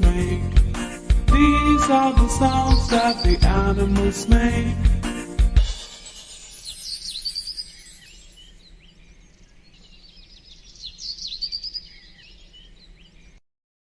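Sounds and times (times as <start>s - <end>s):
songbirds chirping and trilling: 1.3s - 4.8s, 5.7s - 13.4s.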